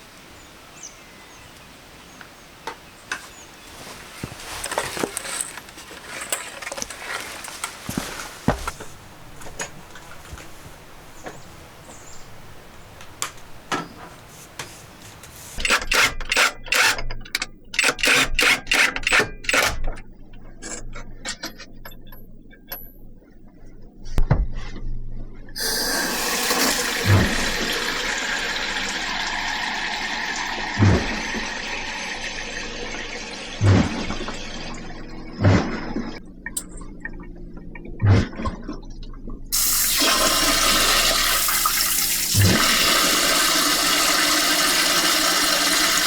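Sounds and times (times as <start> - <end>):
tools clicking and rattling: 4.4 - 10.4, 15.5 - 23.0
running water rushing: 25.6 - 36.2, 39.5 - 46.0.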